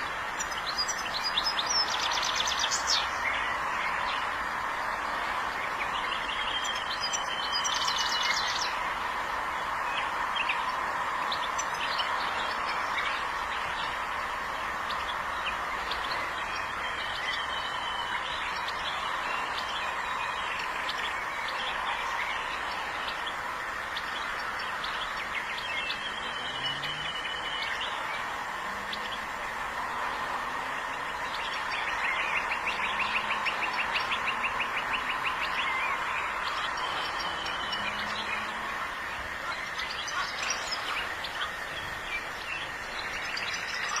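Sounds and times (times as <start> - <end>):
background hiss: 0.0 - 44.0
finch singing: 5.8 - 8.8.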